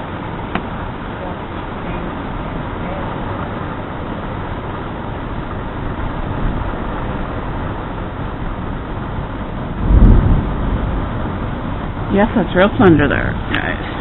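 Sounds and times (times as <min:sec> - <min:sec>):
wind and rain rushing: 0:00.0 - 0:14.0
loud low thunder clap: 0:09.7 - 0:12.2.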